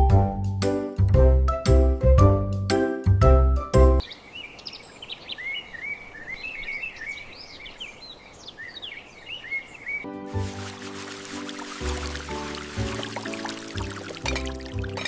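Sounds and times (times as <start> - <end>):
songbirds chirping: 4.0 - 15.0.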